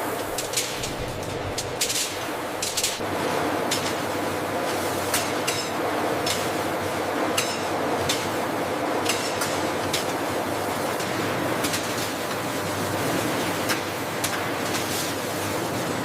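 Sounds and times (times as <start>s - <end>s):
machinery humming: 0.0s - 3.6s.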